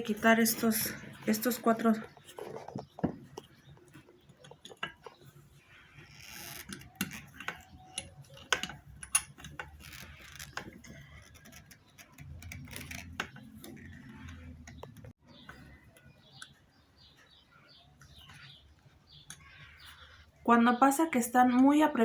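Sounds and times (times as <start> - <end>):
hand tools clicking on metal: 6.4 - 15.1.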